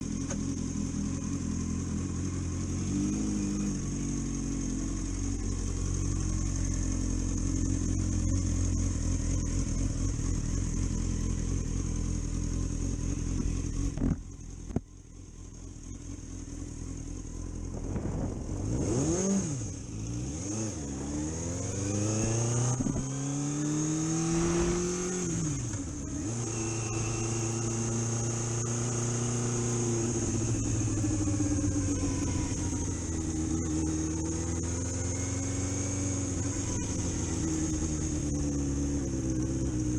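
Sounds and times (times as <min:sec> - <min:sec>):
car engine revving: 0:16.4 - 0:39.9.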